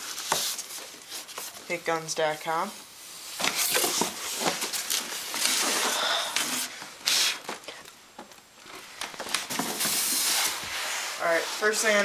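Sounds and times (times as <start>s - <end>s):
cardboard packaging rustling: 0.0s - 1.7s, 3.4s - 7.8s, 8.6s - 12.0s.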